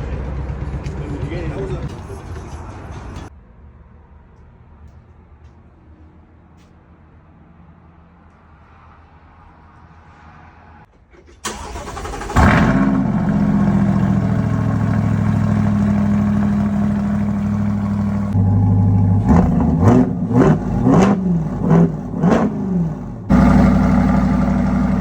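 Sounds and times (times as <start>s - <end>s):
car engine starting and idling: 10.8s - 25.0s.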